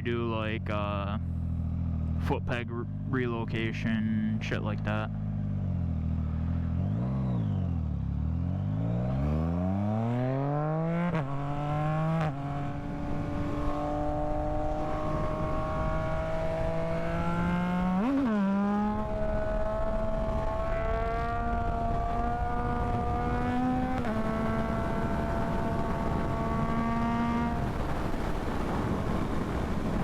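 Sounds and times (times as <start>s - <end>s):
motorcycle engine revving: 1.2s - 3.3s, 5.0s - 30.0s
wind noise: 11.4s - 17.4s, 18.8s - 30.0s.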